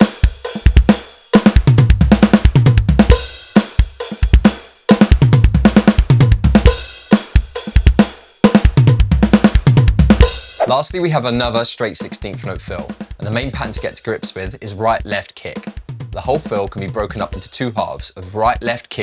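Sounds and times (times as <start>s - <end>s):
snare and tom strokes: 0.0s - 11.5s
bass drum kicks: 1.6s - 3.2s, 5.1s - 8.0s, 8.7s - 10.9s.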